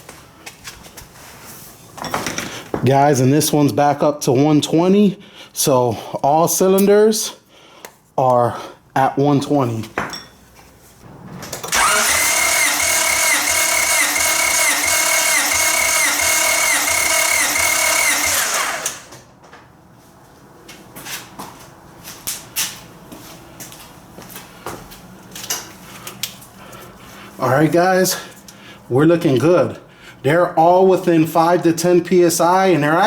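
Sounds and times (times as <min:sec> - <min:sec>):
starter cranking engine: 0:11.6 - 0:19.2.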